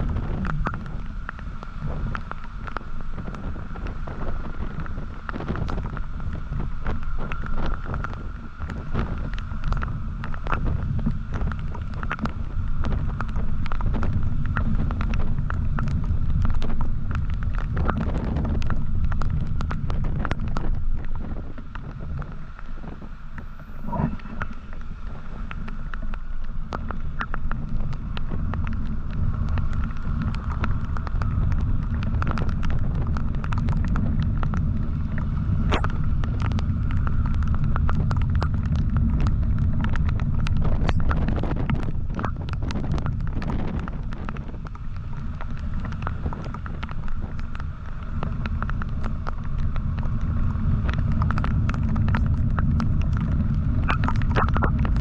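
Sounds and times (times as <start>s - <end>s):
road noise: 0.0s - 41.2s, 43.0s - 55.0s
sharp crackles: 0.0s - 55.0s
wind buffeting microphone: 0.0s - 55.0s.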